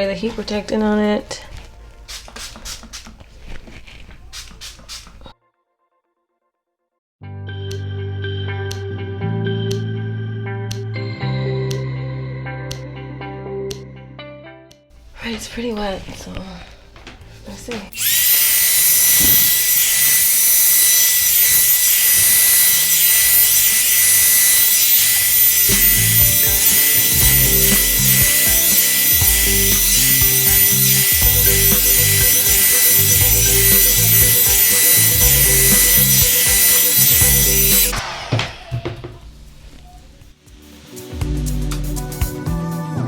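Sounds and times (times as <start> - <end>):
background music with beat: 7.6 - 14.0, 25.7 - 43.0
hair dryer blowing: 17.9 - 40.0.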